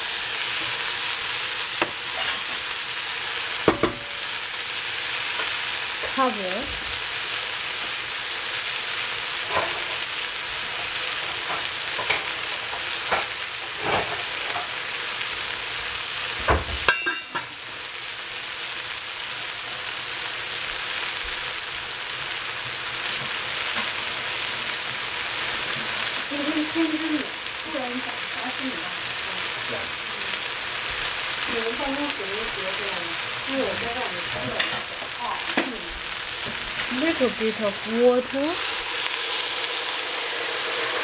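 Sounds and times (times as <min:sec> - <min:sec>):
food sizzling in a hot pan: 0:00.0 - 0:41.0
utensil knocking on pan: 0:03.6 - 0:04.1.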